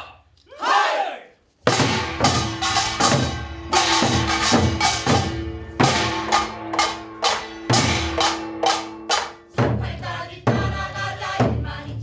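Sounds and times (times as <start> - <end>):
drum strikes: 1.6 - 11.7
wood block clacks: 2.3 - 9.5.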